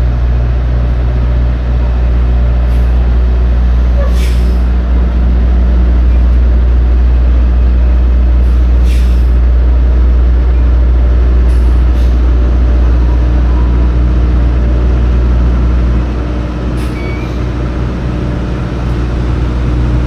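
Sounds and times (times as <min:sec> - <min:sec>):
diesel truck engine idling: 0:00.0 - 0:20.0
air hissing: 0:03.9 - 0:06.1, 0:08.4 - 0:09.4, 0:11.4 - 0:12.6.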